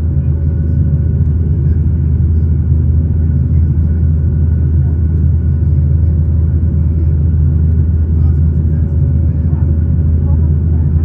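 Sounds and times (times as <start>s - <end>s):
jet engines low rumble: 0.0s - 11.0s.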